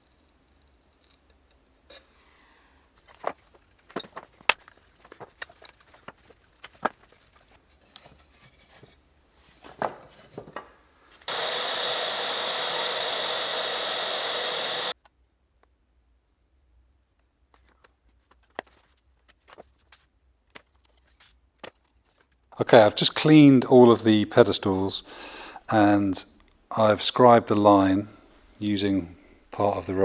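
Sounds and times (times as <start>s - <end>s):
loud steady rushing hiss: 11.3s - 15.0s.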